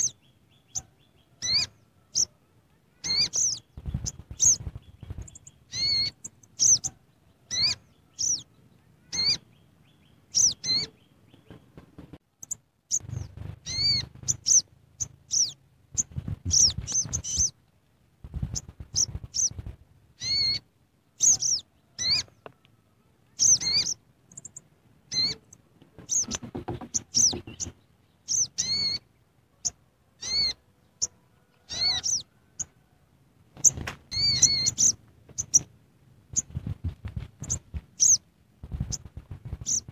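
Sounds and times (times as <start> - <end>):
bird chirping: 0.0 - 17.6, 18.3 - 32.9, 33.6 - 39.9
dull low thumps or rustling: 3.8 - 5.4, 15.9 - 17.5, 18.2 - 19.9, 36.3 - 39.9.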